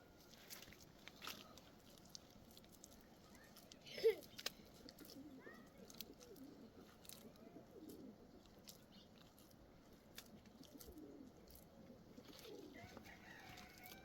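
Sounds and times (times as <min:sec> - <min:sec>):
dove cooing: 0:04.8 - 0:08.6, 0:10.3 - 0:14.0.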